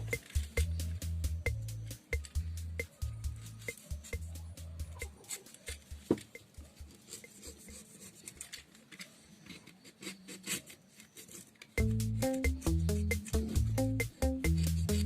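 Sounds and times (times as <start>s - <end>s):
background music: 0.0s - 7.2s, 11.8s - 15.0s
hand tool scraping coconut husk: 3.4s - 15.0s.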